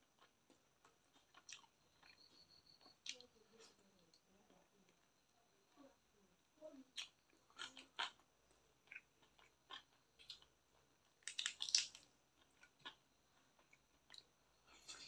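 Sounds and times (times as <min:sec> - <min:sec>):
mouth chewing with wet smacks: 0:00.0 - 0:03.3, 0:06.9 - 0:15.0.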